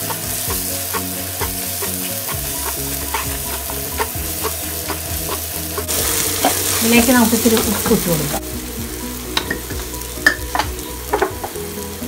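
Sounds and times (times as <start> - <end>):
wooden spatula scraping a pan: 0.0 - 8.1
onions sizzling in a pan: 0.0 - 12.0.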